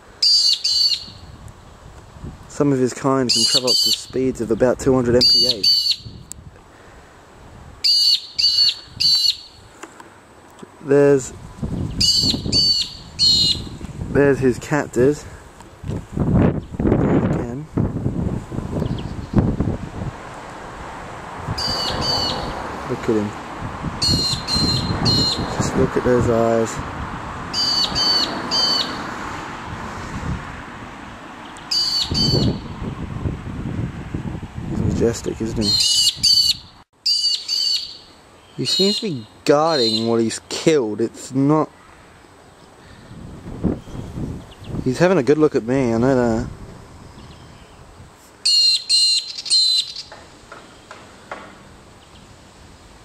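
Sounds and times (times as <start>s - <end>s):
short high bird calls: 0.2s - 1.3s, 3.3s - 4.1s, 5.2s - 6.2s, 7.8s - 9.7s, 11.8s - 13.8s, 21.6s - 22.6s, 24.0s - 25.5s, 27.6s - 29.0s, 31.6s - 32.7s, 35.6s - 40.2s, 48.4s - 50.9s.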